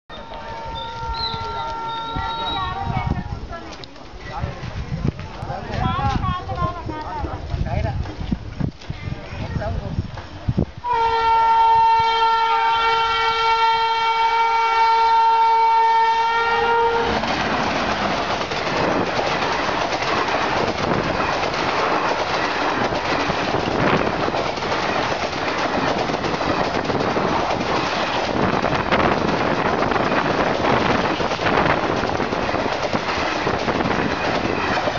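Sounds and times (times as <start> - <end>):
locomotive horn: 0.1 - 2.8, 10.8 - 17.3
train passing clickety-clack: 0.1 - 10.6, 11.2 - 34.9.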